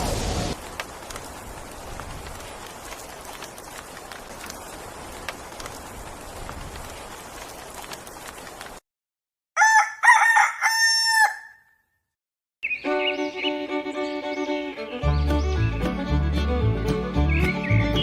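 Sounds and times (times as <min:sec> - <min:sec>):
steady hiss with clicks: 0:00.6 - 0:08.8
rooster crowing: 0:09.6 - 0:11.8.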